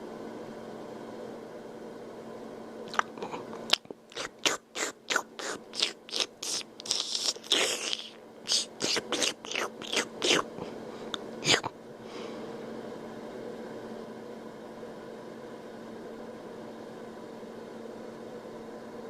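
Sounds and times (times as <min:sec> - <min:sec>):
steady low hum: 0:00.0 - 0:19.0
man slurping and mouth-smacking: 0:02.9 - 0:10.5.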